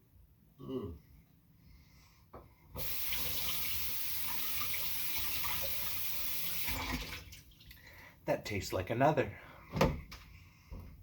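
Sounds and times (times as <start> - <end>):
water running: 2.8 - 7.8.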